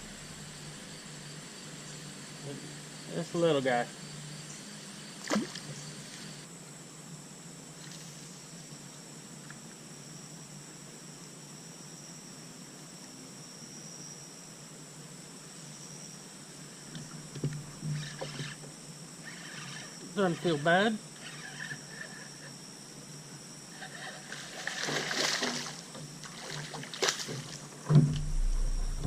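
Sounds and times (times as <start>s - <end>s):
insect trill: 0.0s - 29.0s
sharp knocks: 27.3s - 29.0s.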